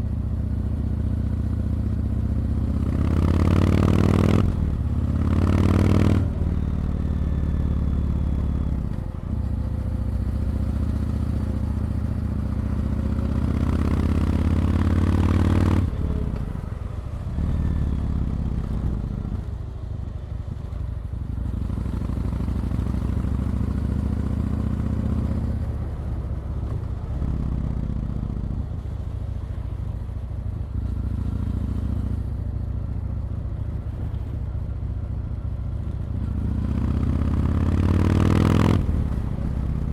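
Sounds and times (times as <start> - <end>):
motorcycle engine revving: 0.6 - 8.8, 9.4 - 16.5, 36.1 - 39.9.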